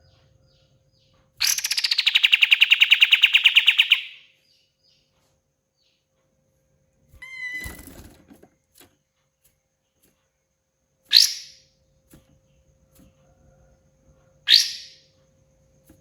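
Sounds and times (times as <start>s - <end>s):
songbird whistling: 1.4s - 4.3s, 14.5s - 15.0s.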